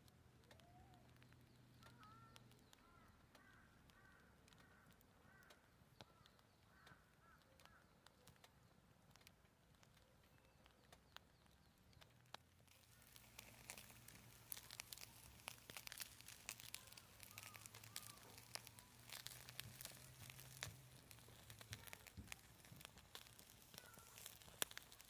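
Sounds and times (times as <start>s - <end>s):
campfire crackling: 0.0s - 25.0s.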